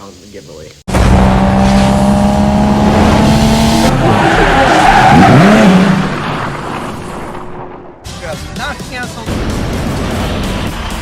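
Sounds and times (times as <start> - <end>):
loud car engine running: 0.9 - 7.8.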